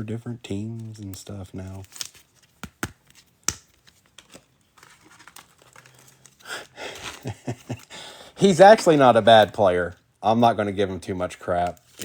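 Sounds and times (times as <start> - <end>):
plastic packaging crinkling: 0.7 - 7.9.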